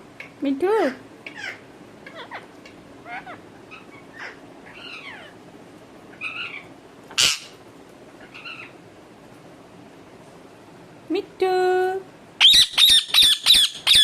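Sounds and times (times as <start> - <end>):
parrot calls: 1.3 - 5.4, 6.1 - 7.6, 8.2 - 8.8, 12.4 - 14.0
parrot harsh screech: 6.2 - 7.6, 12.4 - 14.0.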